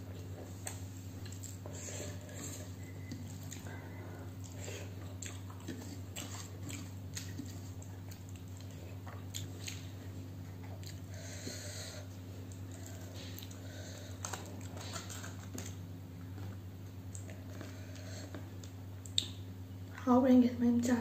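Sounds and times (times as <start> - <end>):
steady low hum: 0.0 - 21.0
chewing and wet mouth clicks: 5.2 - 9.9, 18.6 - 19.4.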